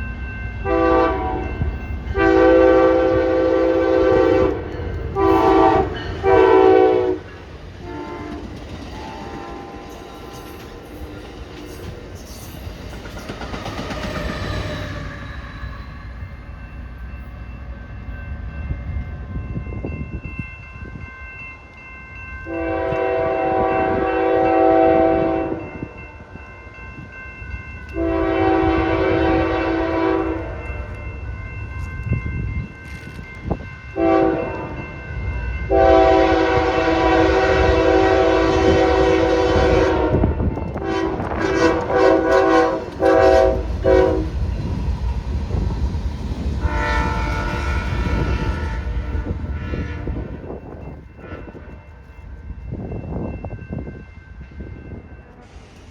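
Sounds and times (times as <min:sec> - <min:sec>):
moving train rumble: 0:00.0 - 0:55.9
train horn chord: 0:00.6 - 0:10.5, 0:22.4 - 0:25.7, 0:27.9 - 0:31.0, 0:34.0 - 0:34.8, 0:35.7 - 0:44.5, 0:46.6 - 0:50.5, 0:51.2 - 0:51.9.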